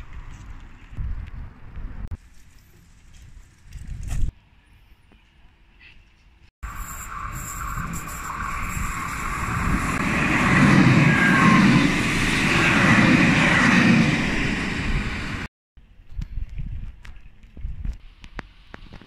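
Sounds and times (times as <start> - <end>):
electric train passing: 6.6 - 15.5.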